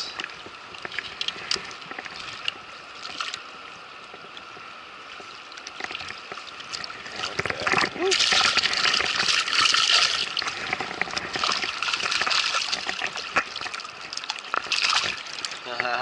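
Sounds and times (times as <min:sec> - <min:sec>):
short splashes and ticks: 0:00.1 - 0:16.0.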